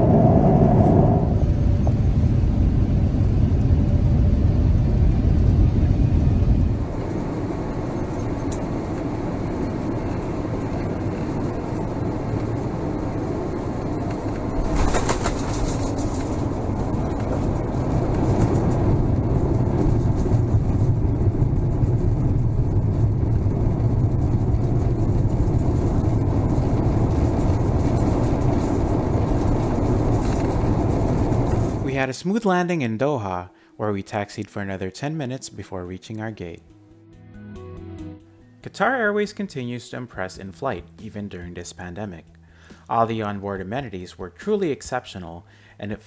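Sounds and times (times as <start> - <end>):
airplane cabin rumble: 0.0 - 32.1.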